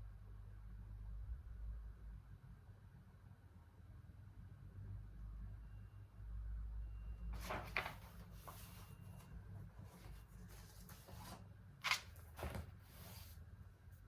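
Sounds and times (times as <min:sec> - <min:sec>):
low room hum: 0:00.0 - 0:14.0
paper rustling: 0:07.4 - 0:13.4.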